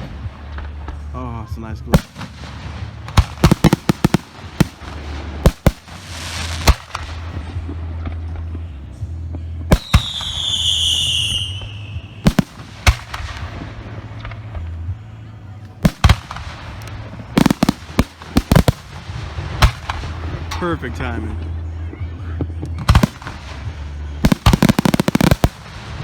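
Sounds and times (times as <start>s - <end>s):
firework shells bursting: 2.0s - 7.4s, 9.7s - 14.6s, 15.8s - 20.8s, 22.8s - 26.0s
high falling whistle: 9.8s - 12.2s.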